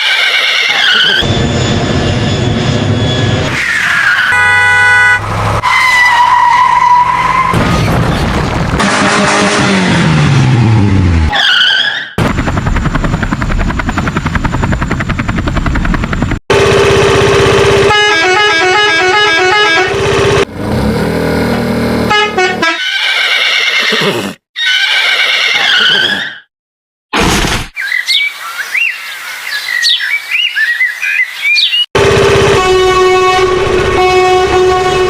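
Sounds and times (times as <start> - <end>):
engine-like falling pitch: 12.2 - 22.6, 32.0 - 35.0.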